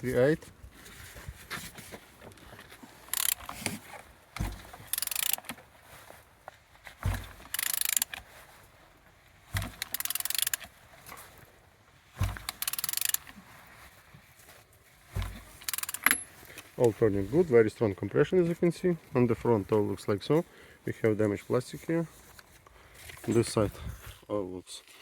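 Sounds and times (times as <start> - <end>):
ratchet wrench clicking: 3.1 - 3.5, 4.9 - 5.4, 7.5 - 8.2, 9.8 - 10.6, 12.5 - 13.3, 15.6 - 16.2
dull thump: 4.4 - 4.8, 6.9 - 7.5, 12.1 - 12.6, 15.1 - 15.6.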